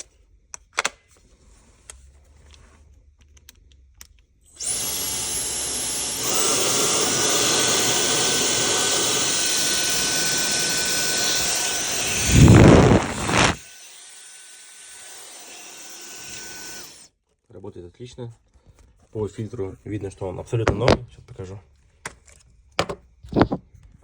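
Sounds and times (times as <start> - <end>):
hair dryer running: 4.6 - 13.8.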